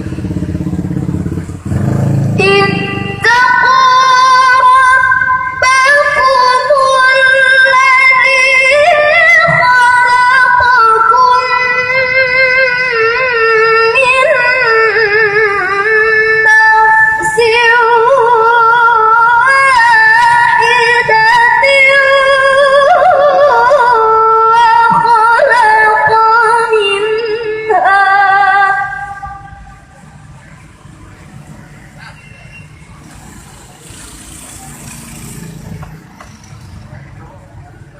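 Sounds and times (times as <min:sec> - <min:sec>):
girl reciting melodically: 0:02.4 - 0:29.0.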